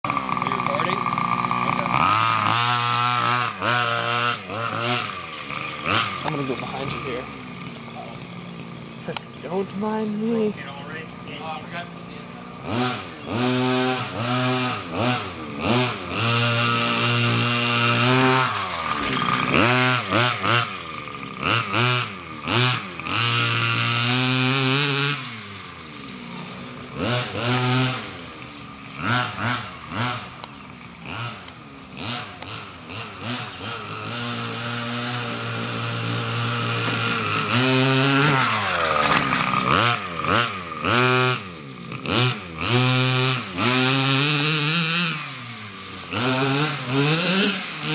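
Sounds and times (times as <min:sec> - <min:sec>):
two-stroke engine revving: 0:00.0 - 0:47.9.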